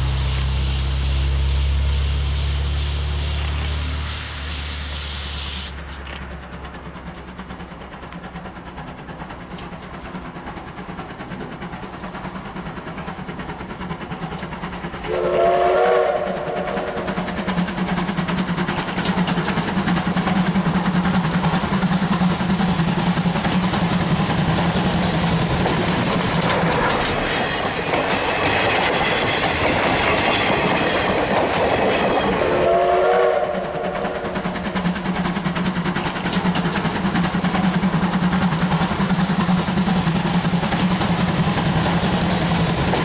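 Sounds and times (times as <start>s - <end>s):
train running noise: 0.0s - 43.0s
steam whistle blast: 15.1s - 17.2s, 32.5s - 34.4s
rapid wheel clatter: 17.1s - 32.7s, 34.4s - 43.0s.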